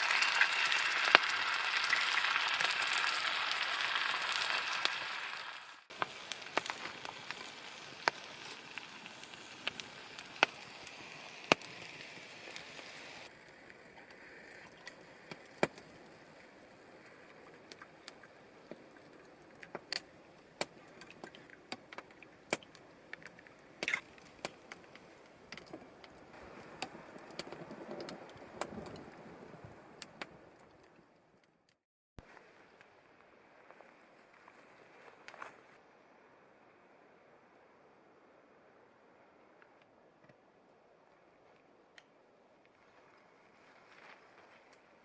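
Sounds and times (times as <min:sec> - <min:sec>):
steady hiss: 0:00.0 - 0:21.5
campfire crackling and popping: 0:00.0 - 0:35.6.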